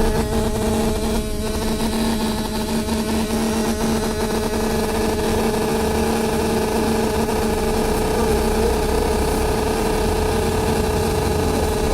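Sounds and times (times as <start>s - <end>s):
loud steady drone: 0.0s - 11.9s
lower drone: 0.0s - 11.9s
bus engine rumble: 7.1s - 11.9s.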